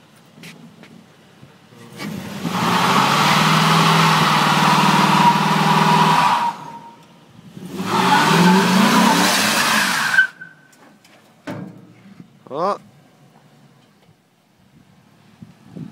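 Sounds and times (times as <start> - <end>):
tires squealing and hissing: 1.8 - 10.8
truck engine revving hard: 1.9 - 6.9, 7.5 - 10.4.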